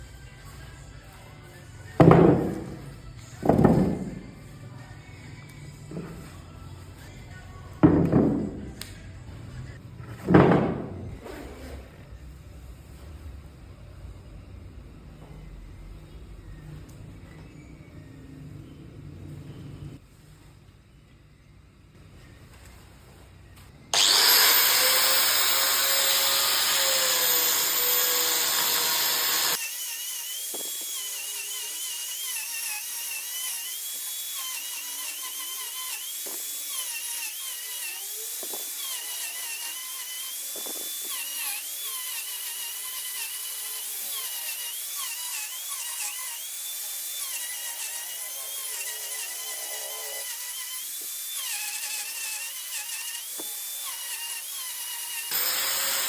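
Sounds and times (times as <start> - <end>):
loud power tool: 23.9 - 56.0
rotary tool whining carving wood: 23.9 - 56.0.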